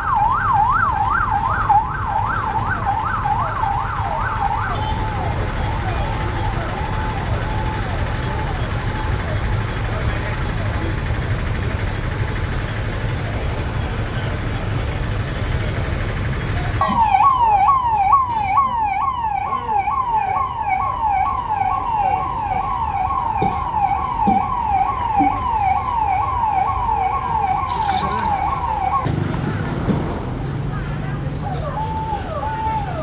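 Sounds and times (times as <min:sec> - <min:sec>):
electronic vehicle siren yelping: 0:00.0 - 0:09.4, 0:16.8 - 0:29.1, 0:31.4 - 0:33.0
traffic and engine rumble: 0:00.0 - 0:33.0.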